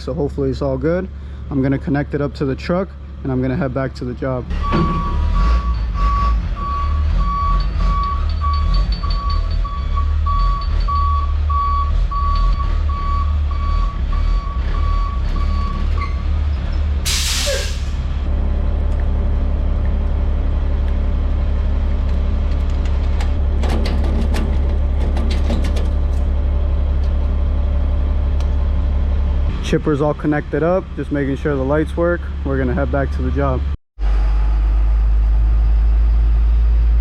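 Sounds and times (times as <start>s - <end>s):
truck engine running: 0.0s - 37.0s
truck reversing alarm beeping: 4.5s - 16.3s
air brake hiss: 17.0s - 18.1s.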